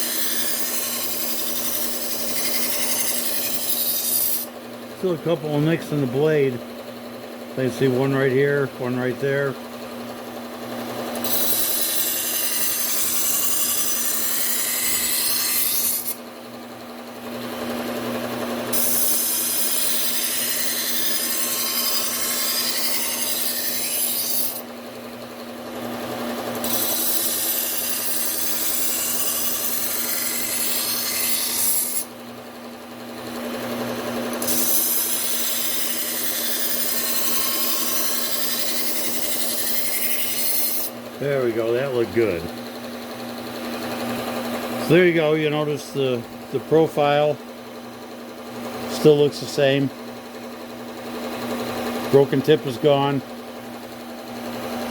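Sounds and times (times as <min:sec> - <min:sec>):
sander motor hum: 0:00.0 - 0:40.3
knife grinding on belt sander: 0:00.0 - 0:54.9.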